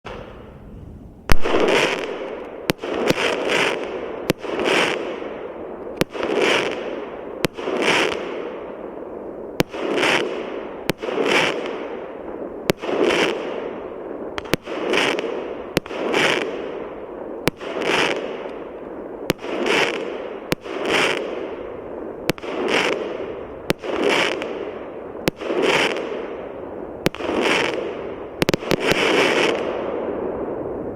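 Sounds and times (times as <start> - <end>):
fireworks bangs and crackle: 0.0 - 30.9.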